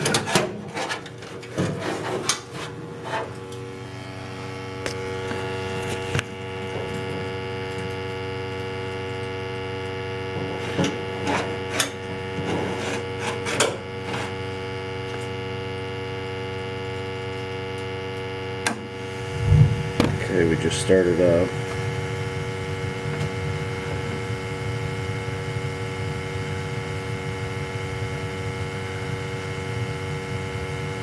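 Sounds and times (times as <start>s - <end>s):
boiler electrical hum: 0.0s - 31.0s.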